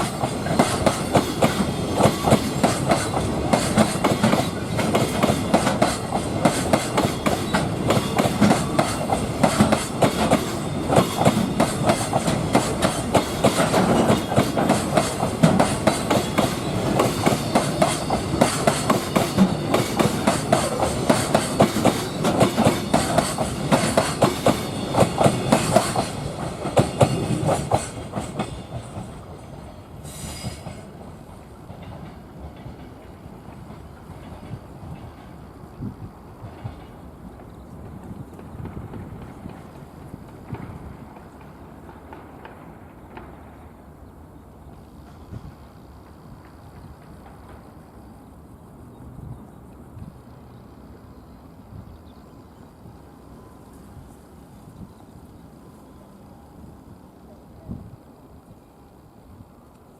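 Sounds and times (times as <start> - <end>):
train wheels clattering over rail joints: 0.0 - 43.6, 44.7 - 48.0.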